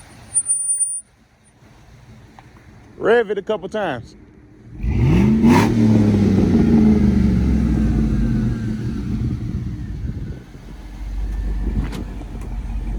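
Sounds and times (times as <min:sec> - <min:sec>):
truck engine revving: 0:04.6 - 0:12.9.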